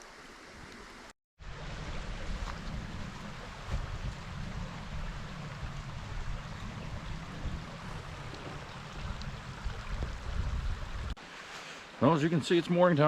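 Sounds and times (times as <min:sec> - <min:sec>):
creek running: 0:00.0 - 0:13.0
wind buffeting microphone: 0:01.6 - 0:11.2.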